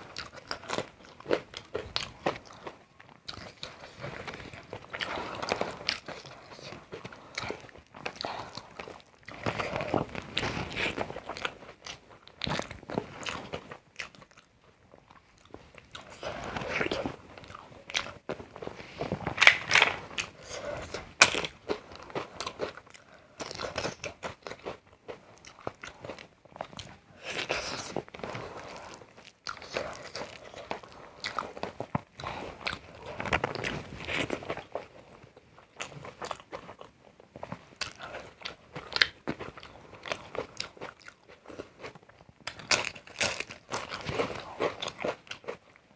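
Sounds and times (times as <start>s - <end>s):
person chewing crunchy food: 0.0s - 45.9s.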